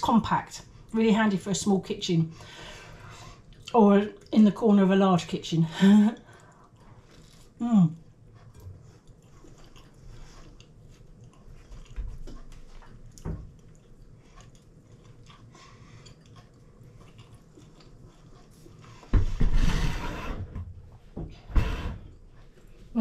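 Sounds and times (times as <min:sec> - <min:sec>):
person chewing food: 0:03.3 - 0:04.4, 0:06.2 - 0:19.1.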